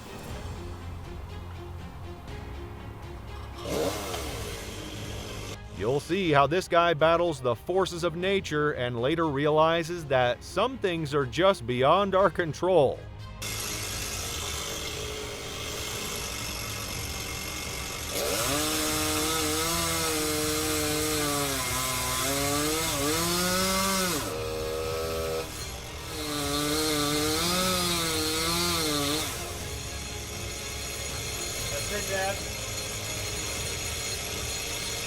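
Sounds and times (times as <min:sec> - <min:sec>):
chainsaw cutting wood: 0:03.2 - 0:05.9, 0:13.4 - 0:35.0.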